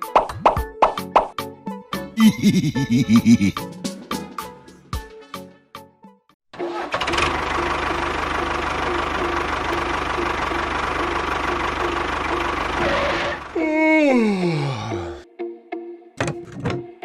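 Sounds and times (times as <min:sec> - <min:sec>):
machine running with pulsing tone: 0:08.4 - 0:13.5.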